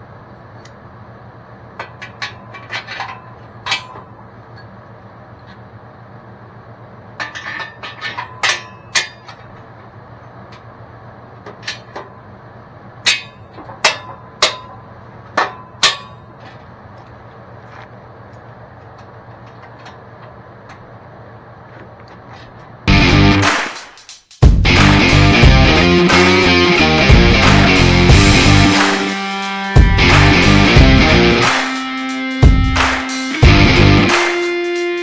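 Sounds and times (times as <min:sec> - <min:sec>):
hammer striking metal: 0:13.1 - 0:14.8, 0:15.4 - 0:16.2, 0:23.3 - 0:24.1, 0:27.4 - 0:30.7, 0:31.4 - 0:33.4
steady low hum: 0:14.2 - 0:23.5, 0:24.4 - 0:29.2, 0:29.8 - 0:31.6, 0:32.4 - 0:34.3.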